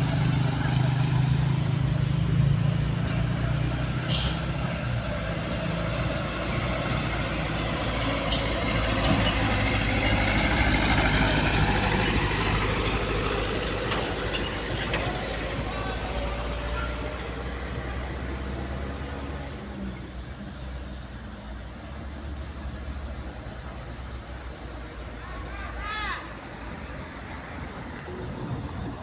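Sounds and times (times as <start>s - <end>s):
truck diesel engine running: 0.0s - 20.3s.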